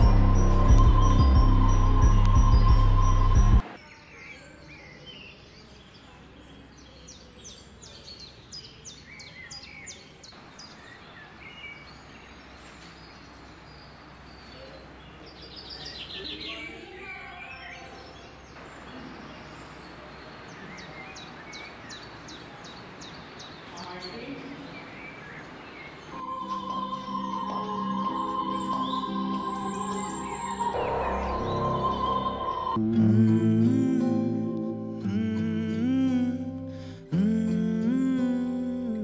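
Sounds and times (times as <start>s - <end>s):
small birds chirping: 0.0s - 32.8s.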